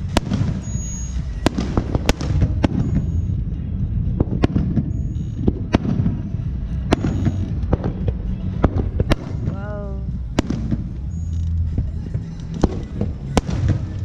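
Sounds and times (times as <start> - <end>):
distant fireworks rumble: 0.0 - 14.0
fireworks cracks and bangs: 0.0 - 14.0.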